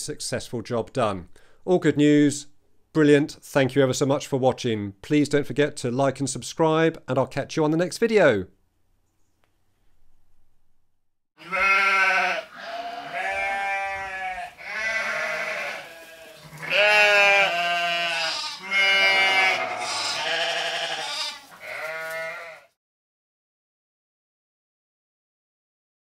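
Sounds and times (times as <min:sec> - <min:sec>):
sheep bleating: 0:11.4 - 0:22.8.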